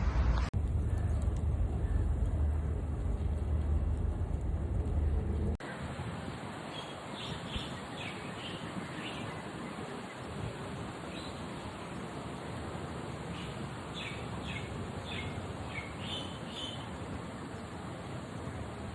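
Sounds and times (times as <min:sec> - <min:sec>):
strong low rumble: 0:00.0 - 0:05.6
outdoor background noise: 0:00.0 - 0:18.9.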